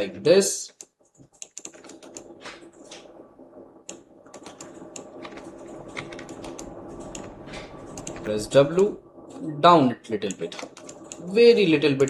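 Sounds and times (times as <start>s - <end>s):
steady background hum: 0.0s - 12.0s
keyboard and mouse clicking: 0.7s - 3.0s, 3.9s - 7.3s, 7.9s - 8.3s, 10.2s - 11.3s.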